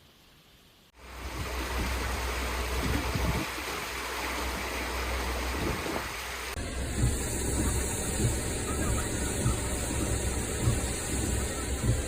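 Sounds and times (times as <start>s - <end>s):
floodwater rushing: 1.0s - 12.0s
low rumble: 6.5s - 12.0s.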